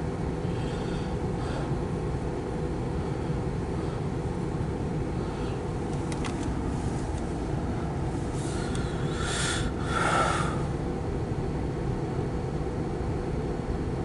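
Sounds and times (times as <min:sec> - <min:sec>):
train air hiss: 0:07.8 - 0:10.8.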